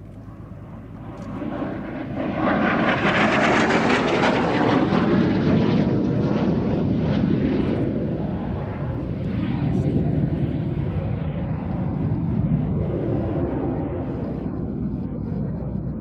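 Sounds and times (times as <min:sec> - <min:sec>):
aircraft engine rush: 0:00.0 - 0:16.0.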